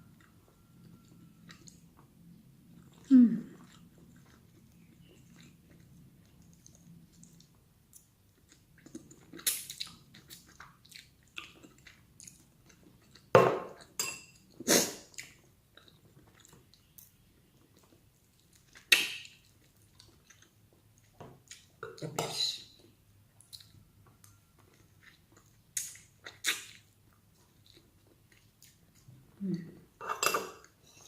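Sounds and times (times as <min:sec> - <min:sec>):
chewing and eating: 0:00.0 - 0:21.8, 0:22.7 - 0:30.0
cutlery clinking on a plate: 0:13.4 - 0:14.4, 0:30.0 - 0:30.7.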